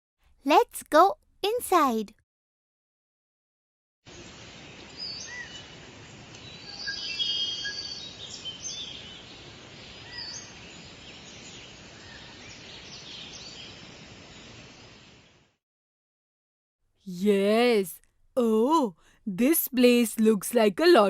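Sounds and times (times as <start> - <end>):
steady outdoor hiss: 4.1 - 15.5
birds chirping and calling: 6.5 - 9.3.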